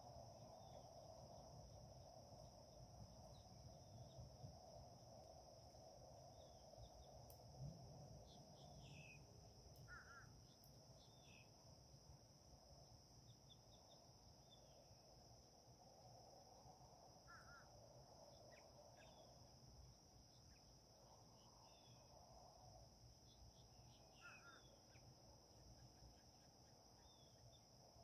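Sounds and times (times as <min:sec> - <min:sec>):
high insect drone: 0:00.0 - 0:28.0
small birds chirping: 0:09.8 - 0:11.5, 0:23.3 - 0:27.7.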